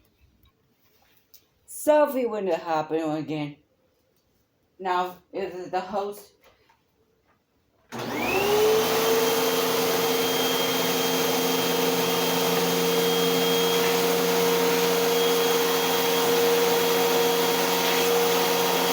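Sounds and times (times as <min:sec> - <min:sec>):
vacuum cleaner motor whine: 0:07.9 - 0:18.9.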